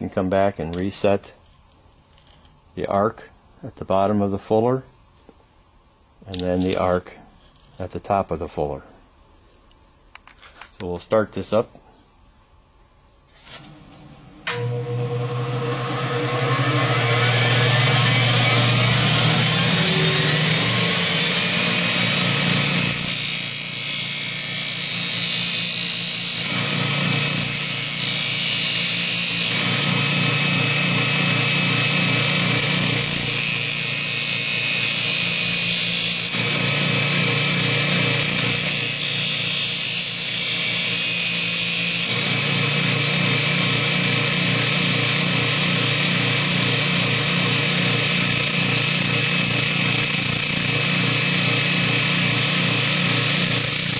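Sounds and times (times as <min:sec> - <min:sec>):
belt grinder grinding steel: 0:14.6 - 0:53.9.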